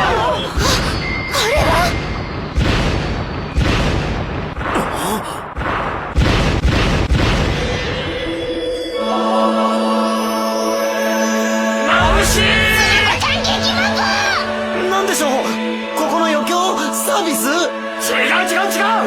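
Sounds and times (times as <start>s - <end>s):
sustained music chord: 10.0s - 17.0s
heavy booming hits: 12.0s - 15.7s.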